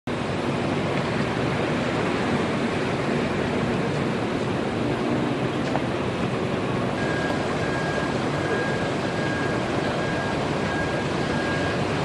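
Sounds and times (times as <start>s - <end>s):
faint high beeps: 7.0s - 11.9s.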